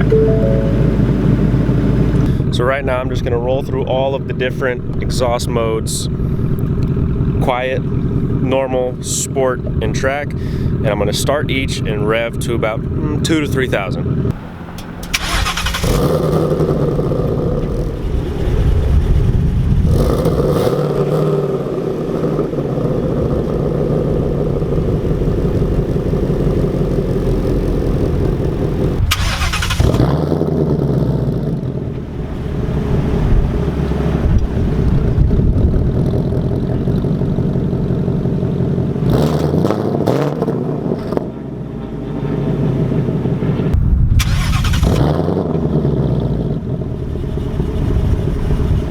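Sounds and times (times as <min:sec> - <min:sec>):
car engine starting and revving: 0:14.0 - 0:48.9.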